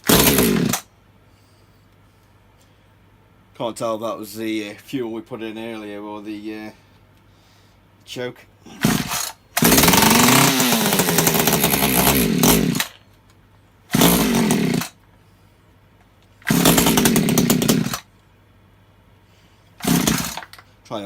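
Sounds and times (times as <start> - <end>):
chainsaw pull-started and revving: 0.0 - 0.9, 8.8 - 13.0, 13.9 - 15.0, 16.4 - 18.1, 19.8 - 20.6.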